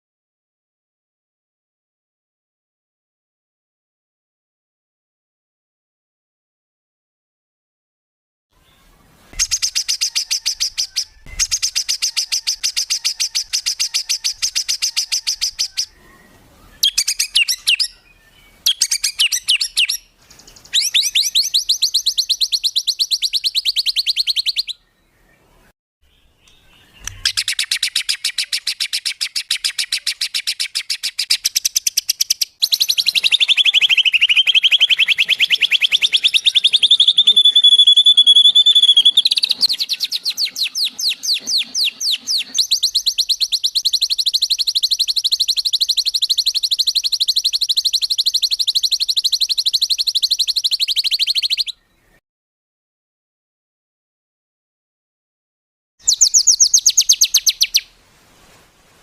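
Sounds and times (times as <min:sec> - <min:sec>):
songbird rapid-fire song: 0:08.6 - 0:52.2, 0:56.0 - 0:58.0.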